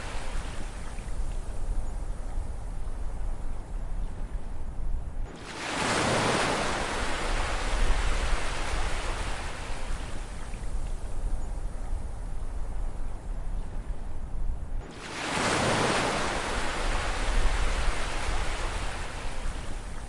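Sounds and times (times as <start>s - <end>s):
low rumble of surf: 0.0s - 20.0s
ocean wave breaking: 5.4s - 9.8s, 14.8s - 19.6s.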